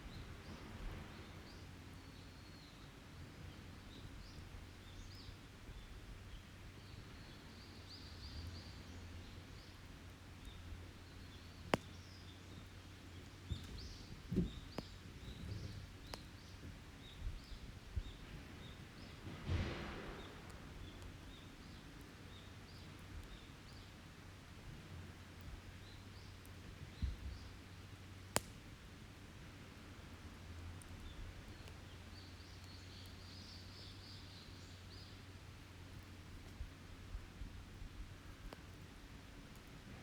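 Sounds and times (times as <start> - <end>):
small birds chirping: 0.0 - 24.4, 25.1 - 28.5, 30.8 - 37.2
wood fire crackling: 0.1 - 40.0
fire pops: 9.6 - 23.9, 28.2 - 29.5, 30.7 - 33.2.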